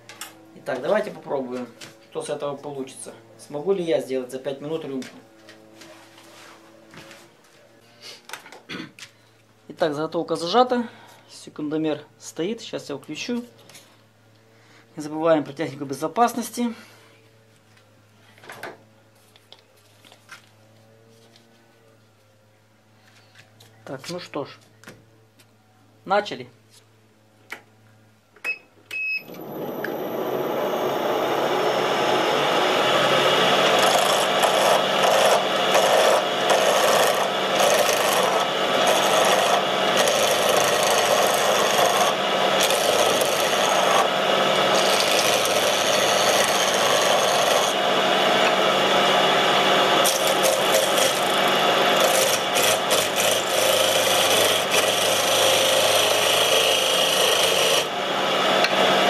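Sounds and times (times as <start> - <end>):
turning tool cutting wood: 29.3 - 59.0
wood lathe motor humming: 29.3 - 59.0.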